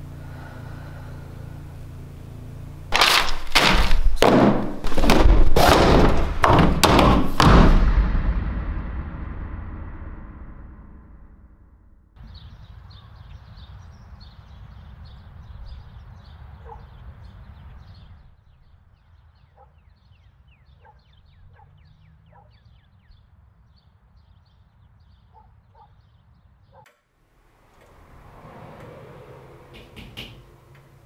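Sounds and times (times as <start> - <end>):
low rumble: 7.4 - 12.6
small birds chirping: 12.2 - 26.9.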